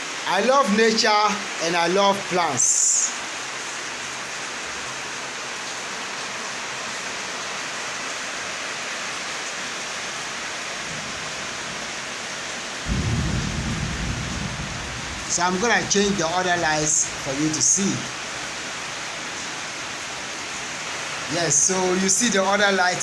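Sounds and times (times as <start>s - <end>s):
steady rain hiss: 0.0s - 23.0s
low rumble: 12.9s - 18.8s.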